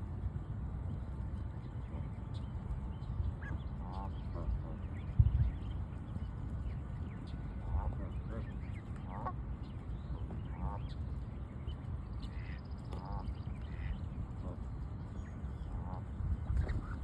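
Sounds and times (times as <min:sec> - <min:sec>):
steady low rumble: 0:00.0 - 0:17.0
ducks quacking: 0:03.4 - 0:05.2, 0:07.6 - 0:09.5, 0:10.2 - 0:11.0, 0:12.2 - 0:14.7, 0:15.6 - 0:17.0.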